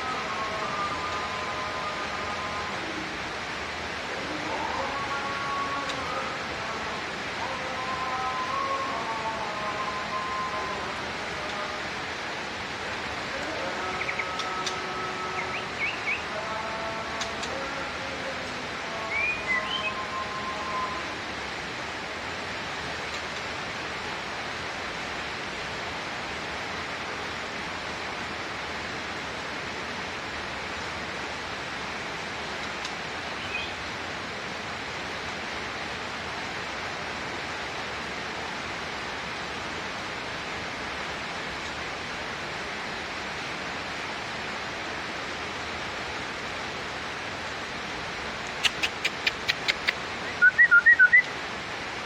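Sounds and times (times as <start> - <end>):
hiss of falling water: 0.1 - 52.0
bird chirp: 15.4 - 16.3, 48.6 - 51.3.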